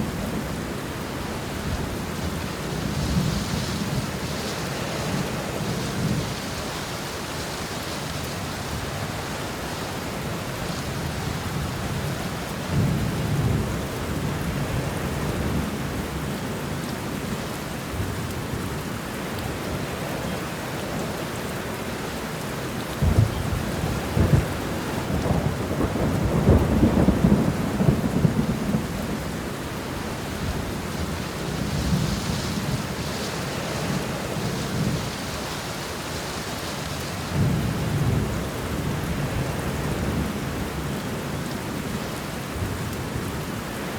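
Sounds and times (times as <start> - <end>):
steady rain falling: 0.0 - 43.9
thunder rumbling: 22.9 - 36.2
sharp thunderclap: 23.0 - 28.9.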